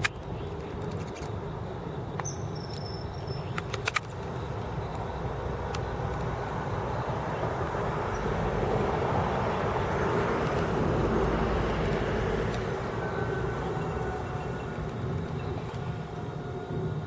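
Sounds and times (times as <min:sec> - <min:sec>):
vehicle passing: 0:04.6 - 0:16.2.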